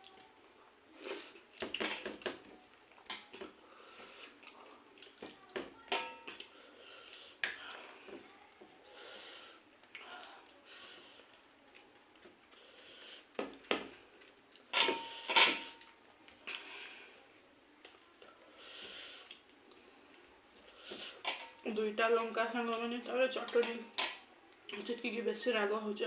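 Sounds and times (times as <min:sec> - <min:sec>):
chewing and mouth clicks: 0:04.2 - 0:05.5
plate and dishes clinking: 0:14.8 - 0:15.8.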